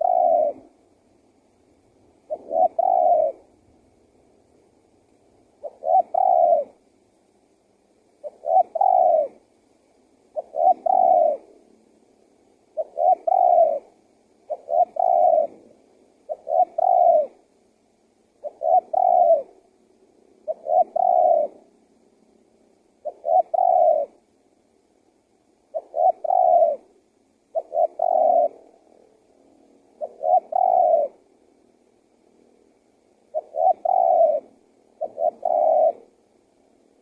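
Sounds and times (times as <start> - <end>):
dove cooing: 0.0 - 0.8, 2.2 - 3.6, 5.5 - 6.8, 8.2 - 9.5, 10.3 - 11.7, 12.7 - 17.4, 18.4 - 19.7, 20.4 - 21.7, 23.0 - 24.3, 25.7 - 26.9, 27.5 - 29.0, 29.9 - 31.3, 33.2 - 36.3.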